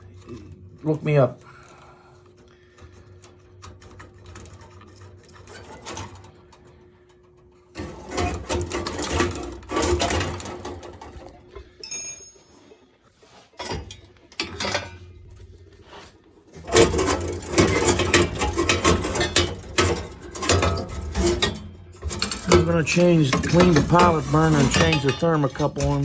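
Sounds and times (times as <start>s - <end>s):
metal tools clattering and scraping: 0.1s - 26.0s
short metallic ring: 11.8s - 12.7s.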